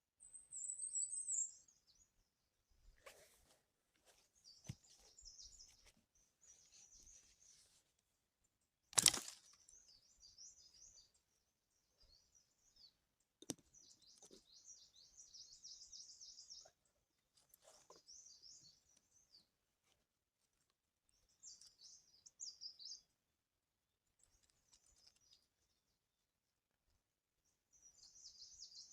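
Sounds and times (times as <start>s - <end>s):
small birds twittering: 0.2s - 2.3s, 4.1s - 7.8s, 9.0s - 19.6s, 21.1s - 23.1s, 27.7s - 28.9s.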